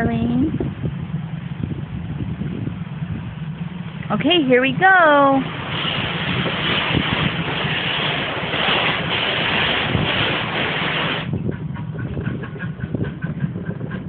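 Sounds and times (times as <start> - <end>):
low engine rumble: 0.0 - 14.0
wheels clicking on track: 0.0 - 14.0
steady hiss: 5.2 - 11.4.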